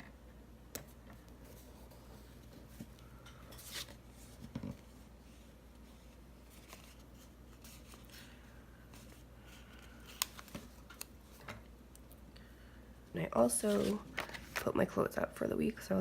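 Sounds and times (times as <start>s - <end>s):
paper rustling: 3.5s - 11.6s, 13.5s - 14.7s.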